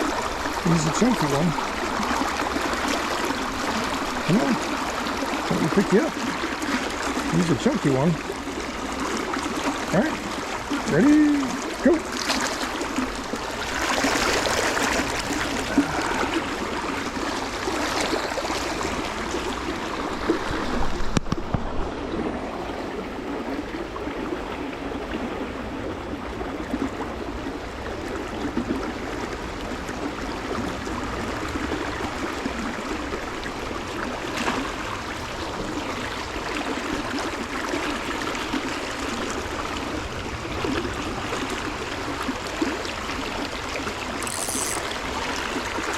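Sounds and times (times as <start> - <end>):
stream water flowing: 0.0 - 45.9.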